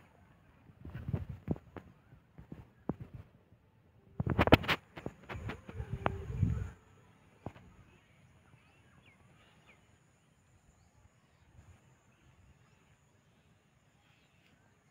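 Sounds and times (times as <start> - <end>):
faint bird chirps: 5.2 - 14.9.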